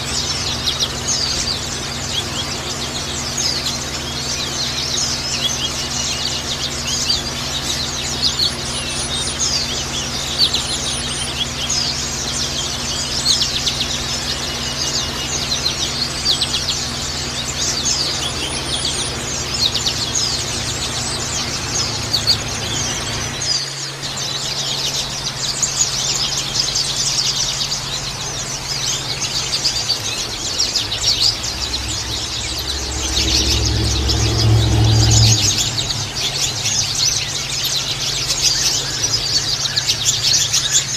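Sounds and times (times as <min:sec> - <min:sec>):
birds chattering and twittering: 0:00.0 - 0:40.9
steady low hum: 0:00.0 - 0:40.9
low rumble: 0:29.8 - 0:37.9.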